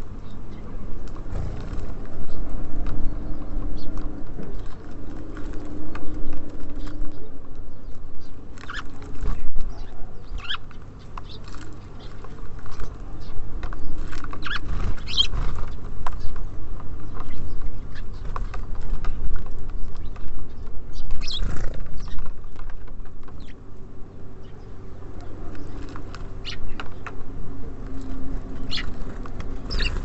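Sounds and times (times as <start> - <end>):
birds pecking and tapping: 0.2 - 30.0
bird chirps: 5.4 - 16.4, 19.8 - 22.3, 25.4 - 27.1, 28.5 - 29.1, 29.7 - 30.0.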